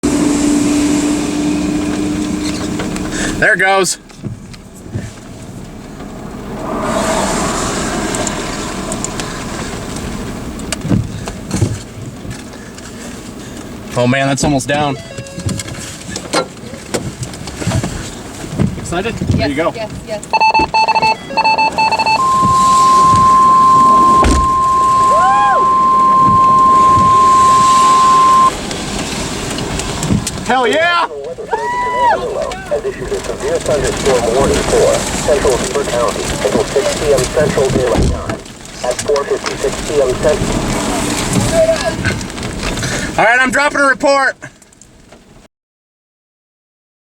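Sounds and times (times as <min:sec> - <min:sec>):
vehicle rushing noise: 0:04.3 - 0:13.9, 0:19.4 - 0:30.7
high alarm tone: 0:06.0 - 0:10.8, 0:20.3 - 0:28.5
dull thumps: 0:22.0 - 0:28.5
person whooping: 0:24.8 - 0:27.0, 0:31.5 - 0:32.7.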